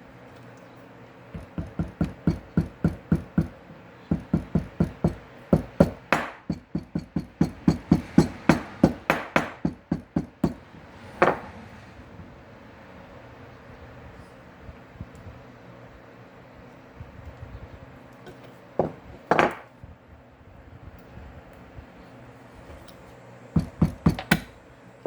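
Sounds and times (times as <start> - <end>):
hammer blows: 1.4 - 11.9.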